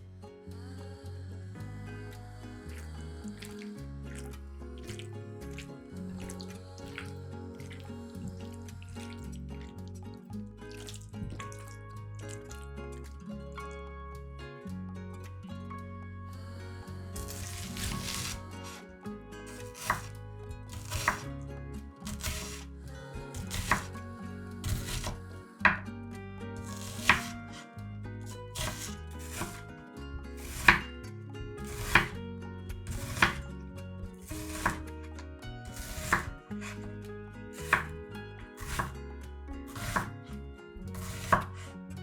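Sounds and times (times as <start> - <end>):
knife chopping on cutting board: 17.2 - 18.8, 19.5 - 21.3, 22.1 - 22.7, 23.4 - 24.0, 24.6 - 25.8, 26.6 - 27.6, 28.6 - 29.6, 30.4 - 30.9, 31.6 - 32.2, 32.9 - 33.4, 34.2 - 34.9, 35.7 - 36.8, 37.6 - 38.0, 38.6 - 39.0, 39.7 - 40.2, 41.0 - 41.7.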